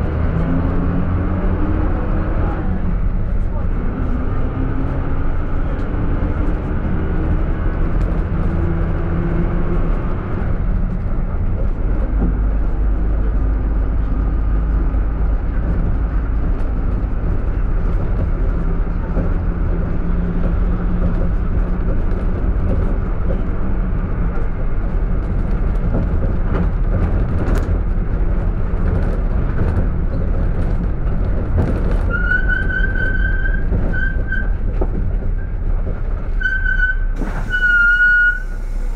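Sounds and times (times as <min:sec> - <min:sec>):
minibus engine and road noise: 0:00.0 - 0:38.9
brakes squealing: 0:31.7 - 0:38.9.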